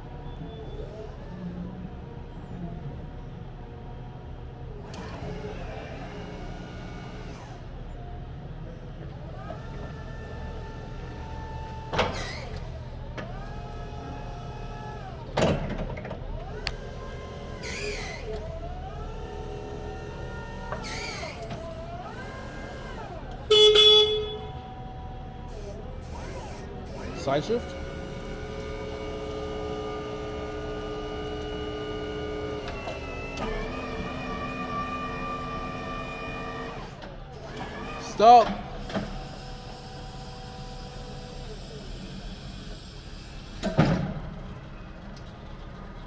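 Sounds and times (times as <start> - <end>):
electric motors whining: 4.8 - 8.2, 9.0 - 44.0
short loud tone: 23.5 - 24.5.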